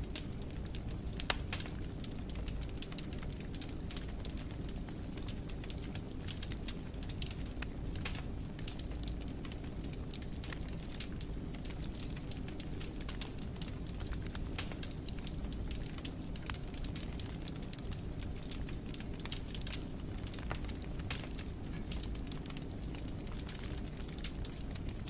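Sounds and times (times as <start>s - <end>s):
low rumble of flames: 0.0s - 25.0s
wood fire crackling: 0.0s - 25.0s.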